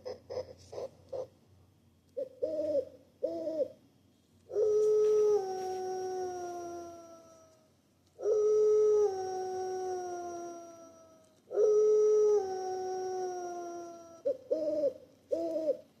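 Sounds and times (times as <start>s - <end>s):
wolf howling: 8.6s - 14.3s.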